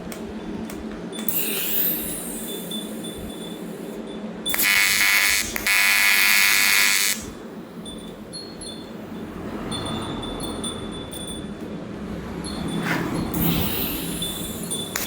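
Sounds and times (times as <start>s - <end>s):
welding arc buzzing: 1.2s - 3.9s, 4.5s - 7.4s, 13.3s - 15.0s.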